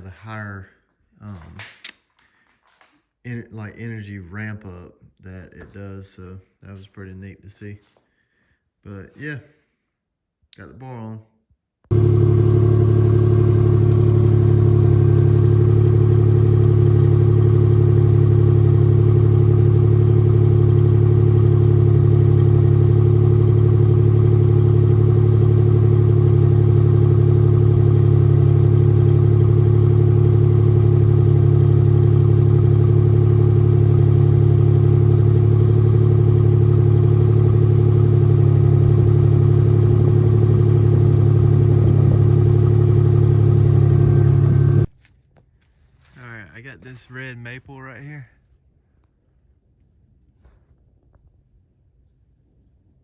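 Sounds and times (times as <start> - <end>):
engine droning steadily: 11.9 - 44.9.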